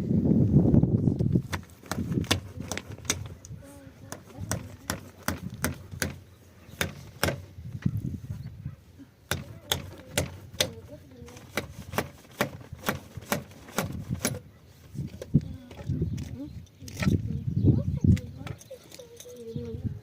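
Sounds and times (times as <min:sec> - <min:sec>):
sharp knocks: 0:04.1 - 0:06.2, 0:06.8 - 0:07.5, 0:09.3 - 0:10.8.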